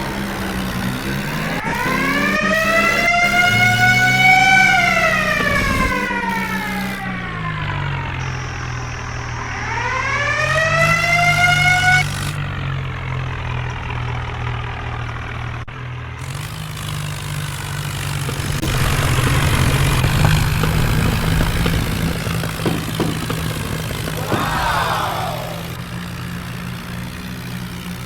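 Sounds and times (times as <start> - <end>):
diesel engine idling: 0.0 - 28.0
rising whine: 0.3 - 12.5.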